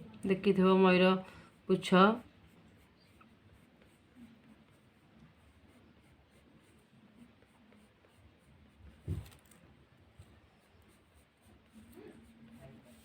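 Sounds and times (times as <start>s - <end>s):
pencil scratching on paper: 0.0s - 13.0s
short thump: 9.0s - 9.5s.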